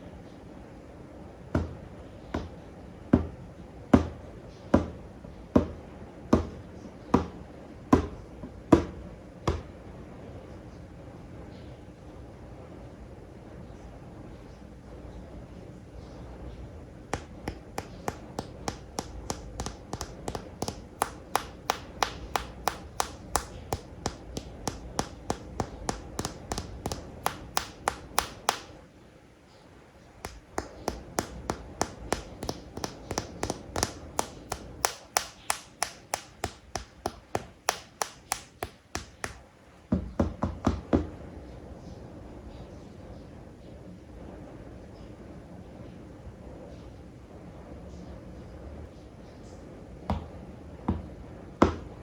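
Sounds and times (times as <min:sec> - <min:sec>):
sharp taps on plastic toys: 0:01.5 - 0:02.6, 0:05.6 - 0:06.6, 0:07.2 - 0:07.4, 0:08.8 - 0:09.7, 0:17.1 - 0:28.8, 0:30.2 - 0:41.1.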